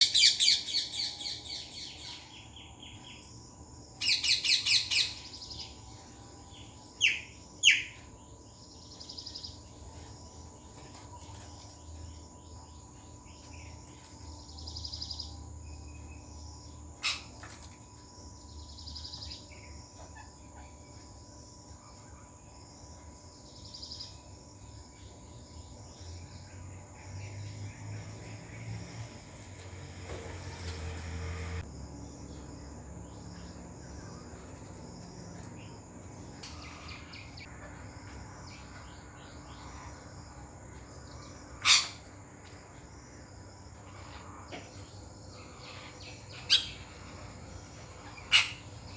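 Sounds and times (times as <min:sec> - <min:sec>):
parakeets screeching: 0:41.6 - 0:42.1, 0:48.0 - 0:48.9.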